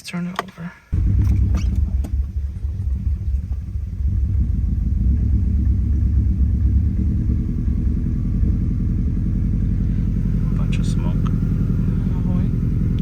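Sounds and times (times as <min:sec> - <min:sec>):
car engine idling: 0:00.6 - 0:13.0.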